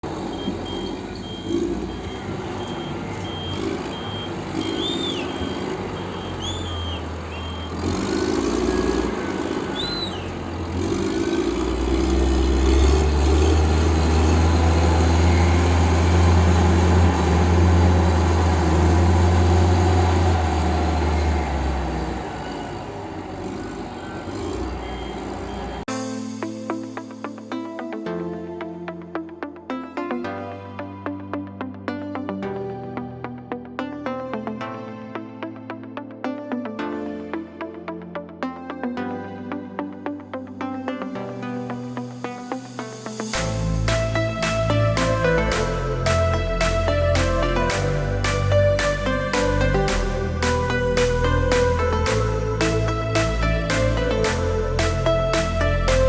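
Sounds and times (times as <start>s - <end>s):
heavy diesel engine running: 0.0s - 25.9s
reversing alarm beeping: 0.1s - 10.4s, 14.2s - 17.8s, 20.8s - 25.9s.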